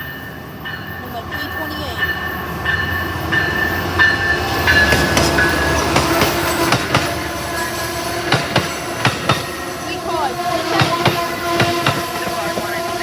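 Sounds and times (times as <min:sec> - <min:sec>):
train passing: 0:00.0 - 0:13.0
wheels squealing: 0:00.0 - 0:13.0
wheels clicking over rail joints: 0:02.7 - 0:13.0.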